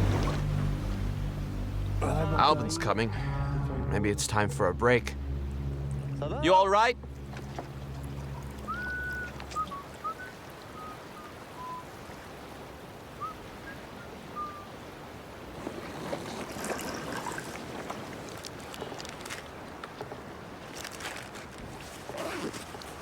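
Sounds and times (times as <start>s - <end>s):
water lapping and trickling: 0.0s - 2.5s, 5.2s - 23.0s
short thin whistled chirps: 8.7s - 11.8s.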